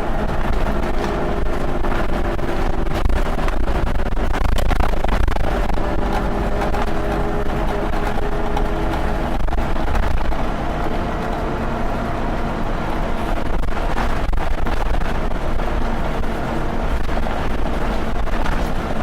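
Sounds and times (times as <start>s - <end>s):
bus engine rumbling: 0.0s - 19.0s.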